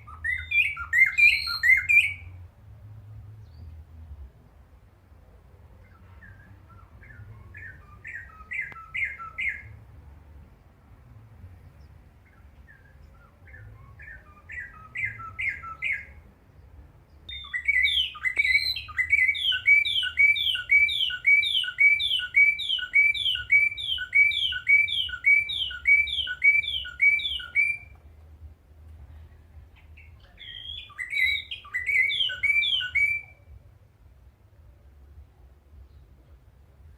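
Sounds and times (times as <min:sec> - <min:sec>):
bird singing: 0:00.0 - 0:02.4, 0:05.8 - 0:09.8, 0:11.6 - 0:28.0, 0:29.7 - 0:33.6.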